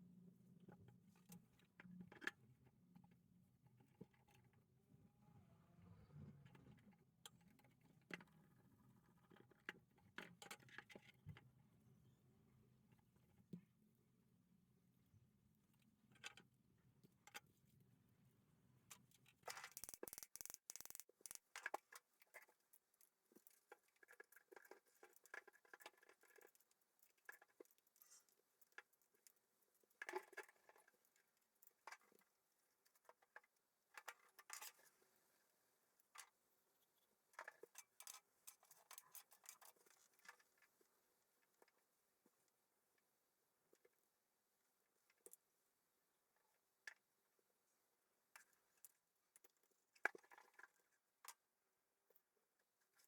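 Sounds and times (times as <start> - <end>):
small hard parts clicking: 19.4 - 29.3.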